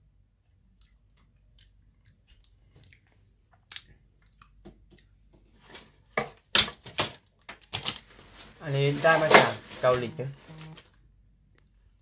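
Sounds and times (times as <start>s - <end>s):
person chewing: 0.4s - 5.3s.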